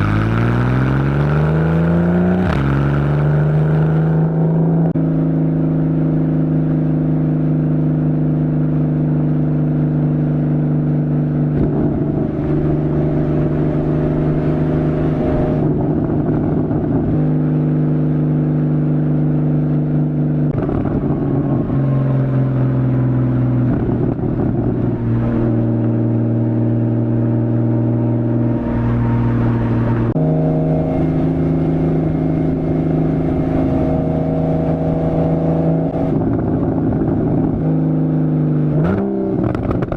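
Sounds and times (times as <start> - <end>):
sports car engine and exhaust: 0.0 - 39.9.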